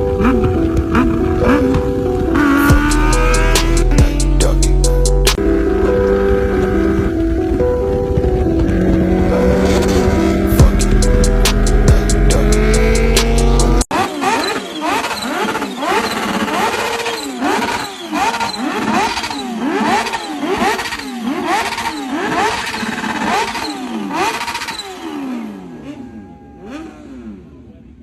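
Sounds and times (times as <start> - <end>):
loud deep-toned sound: 0.0 - 13.8
motorcycle engine revving: 0.0 - 28.0.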